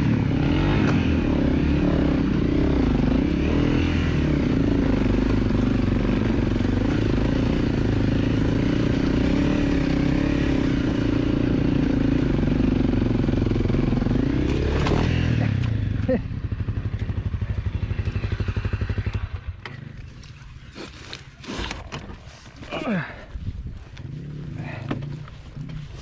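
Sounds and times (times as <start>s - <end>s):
dirt bike engine running: 0.0s - 21.9s, 22.6s - 26.0s.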